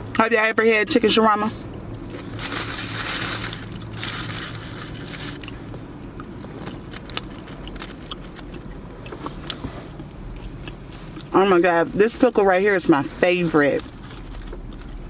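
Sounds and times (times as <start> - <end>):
wet chewing: 1.6 - 11.6, 13.7 - 15.0.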